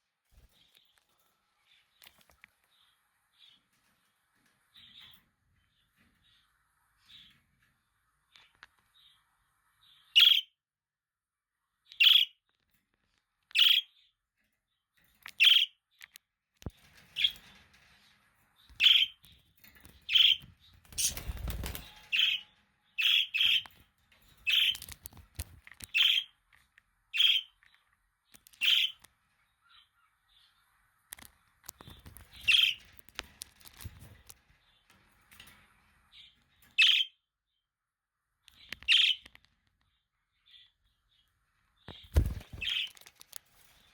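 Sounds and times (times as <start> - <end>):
budgerigars chirping: 10.2 - 10.5, 28.6 - 29.0.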